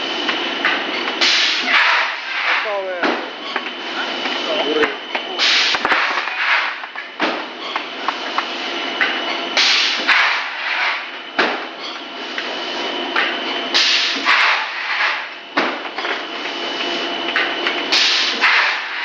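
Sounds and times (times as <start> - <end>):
steady machine noise: 0.0 - 19.0
extruder machine hissing: 9.6 - 11.1, 17.9 - 19.0.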